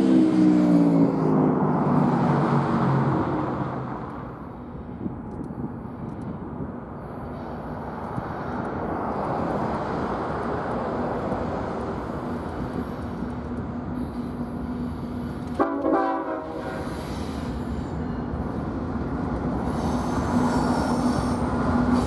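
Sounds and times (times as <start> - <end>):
diesel train rumbling: 0.0 - 22.0.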